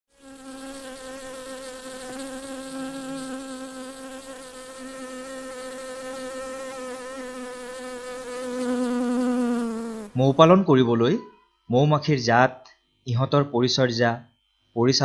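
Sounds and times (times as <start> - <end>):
bees buzzing: 0.2 - 10.4.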